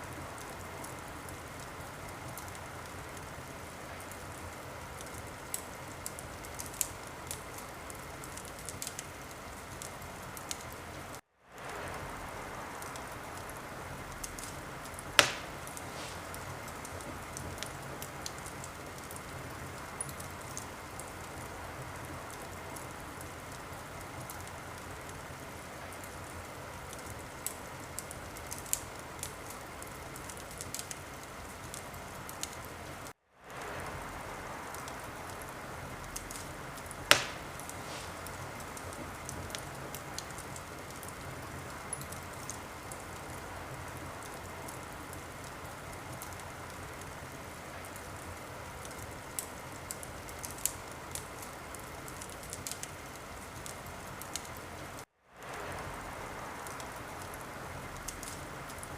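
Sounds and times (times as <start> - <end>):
wood fire crackling: 0.0 - 58.9
loud pop from fire: 15.1 - 16.4, 37.1 - 38.9.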